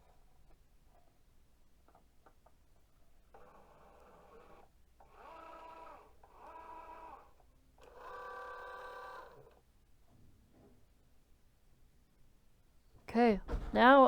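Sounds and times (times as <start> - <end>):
cutting machine motors whirring: 3.3 - 9.6.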